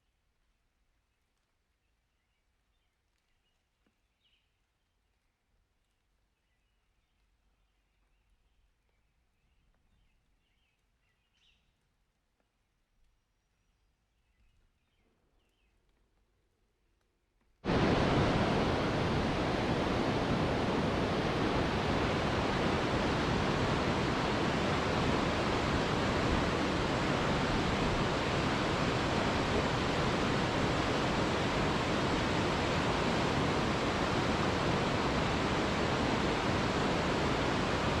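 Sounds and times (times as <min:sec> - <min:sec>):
heavy rain hissing: 0:17.6 - 0:38.0.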